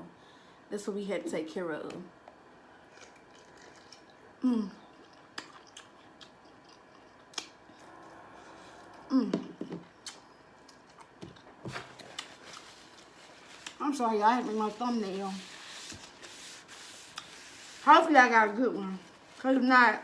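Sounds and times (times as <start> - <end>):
wet chewing and lip smacks: 2.9 - 8.2.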